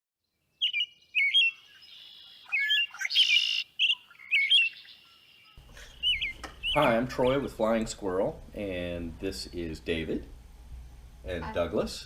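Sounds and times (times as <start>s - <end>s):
songbirds chirping: 0.2s - 9.6s.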